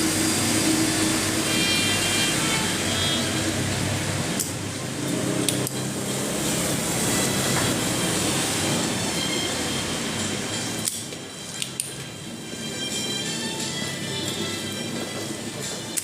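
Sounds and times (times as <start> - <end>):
hot-air gun blowing: 0.0 - 16.0
sharp clicks: 5.4 - 5.8, 10.8 - 12.0.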